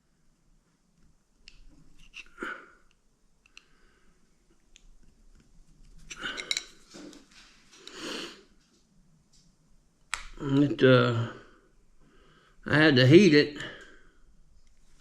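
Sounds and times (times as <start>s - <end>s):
small parts clicking by hand: 1.4s - 3.7s, 4.6s - 6.9s.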